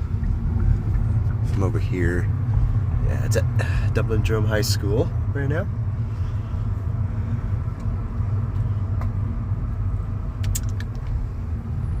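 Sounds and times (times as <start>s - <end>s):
vehicle engine running: 0.0s - 12.0s
sharp clicks: 10.4s - 11.2s.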